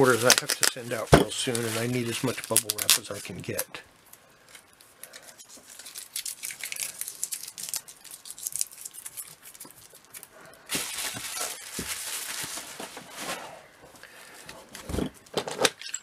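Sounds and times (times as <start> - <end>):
bubble wrap and tape crinkling: 0.0 - 15.1.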